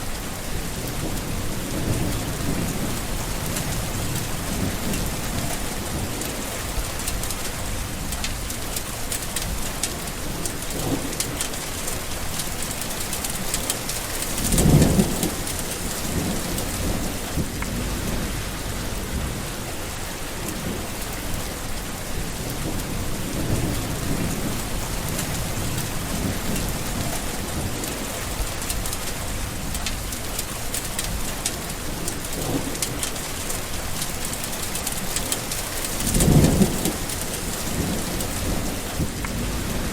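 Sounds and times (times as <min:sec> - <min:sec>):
steady rain: 0:00.0 - 0:39.9
thunder rumbling: 0:00.0 - 0:39.9.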